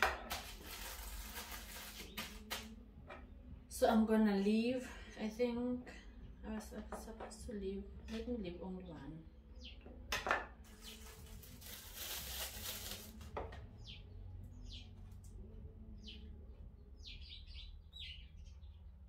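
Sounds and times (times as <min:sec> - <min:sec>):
plastic bag rustling: 0:00.0 - 0:02.5, 0:10.7 - 0:13.3
small birds chirping: 0:05.8 - 0:10.1, 0:10.7 - 0:11.8, 0:13.6 - 0:19.0.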